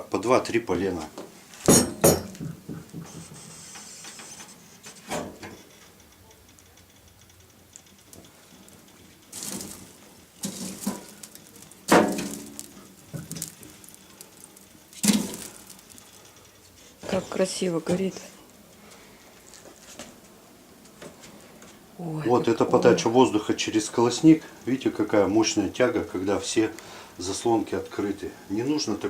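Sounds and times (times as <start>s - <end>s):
logs knocking in metal stove: 1.7s - 3.5s, 9.3s - 14.0s, 15.0s - 16.0s.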